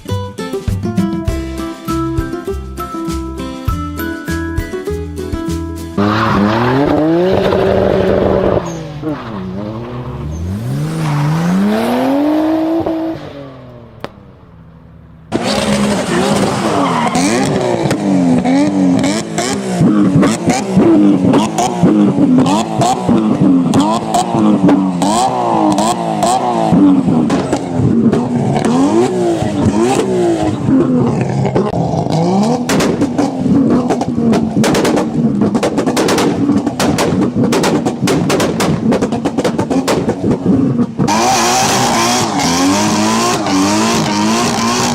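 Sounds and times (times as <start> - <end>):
car engine revving hard: 6.0 - 13.9, 15.3 - 44.9
exhaust crackles and pops: 6.4 - 11.0, 13.6 - 44.9.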